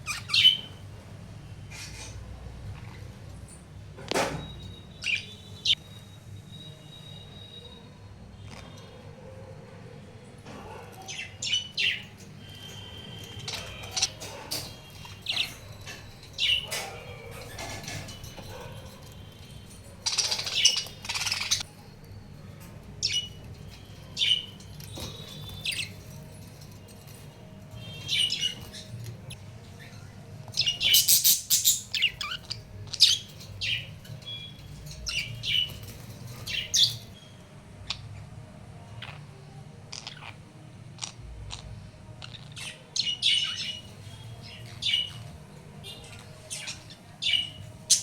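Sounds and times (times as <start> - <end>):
budgerigars chirping: 0.0 - 0.8, 4.7 - 5.8, 11.0 - 21.7, 23.0 - 26.8, 27.7 - 30.0, 30.6 - 37.1, 39.9 - 40.4, 42.2 - 45.4, 46.0 - 48.0.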